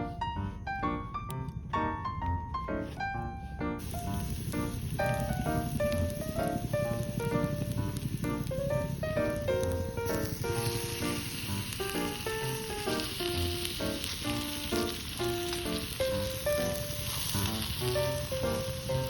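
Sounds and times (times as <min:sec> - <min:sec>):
background music plucked melody: 0:00.0 - 0:19.0
food sizzling in a pan: 0:03.8 - 0:19.0.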